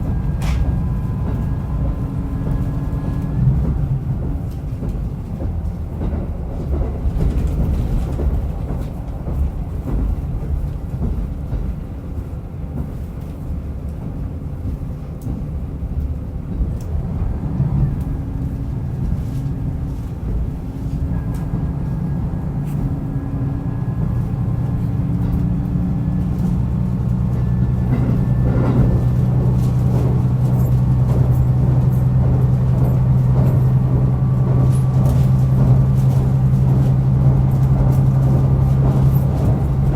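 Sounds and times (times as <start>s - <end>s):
railcar engine rumble: 0.0s - 39.9s
wheels clicking on rail: 0.0s - 39.9s.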